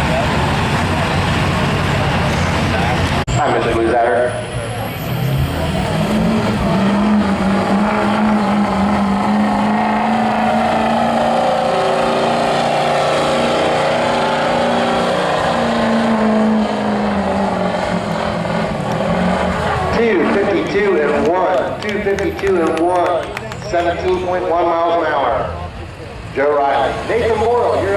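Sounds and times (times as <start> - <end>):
vehicle engine running at high revs: 0.0 - 27.9.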